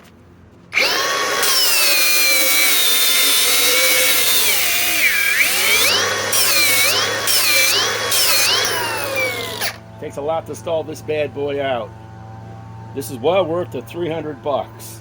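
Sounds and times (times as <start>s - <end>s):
angle grinder grinding metal: 0.8s - 9.8s.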